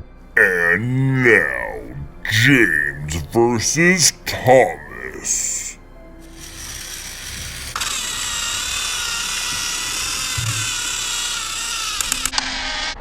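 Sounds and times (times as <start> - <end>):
toy train motors whining: 6.2 - 12.8.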